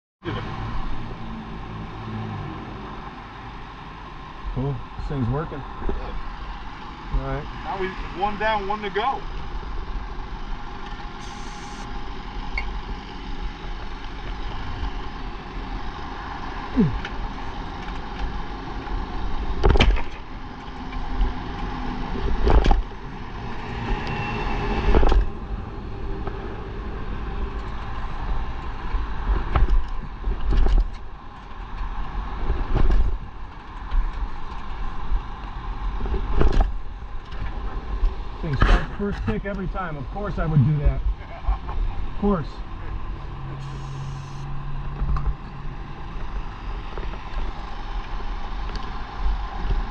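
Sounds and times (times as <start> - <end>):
steady engine hum: 0.2 - 19.6, 36.9 - 49.9.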